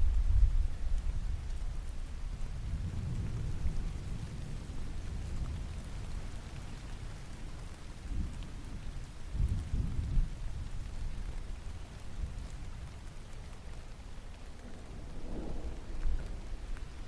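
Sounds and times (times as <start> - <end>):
rain patter: 0.0 - 17.0
distant thunder rumbling: 2.6 - 7.4, 14.3 - 17.0.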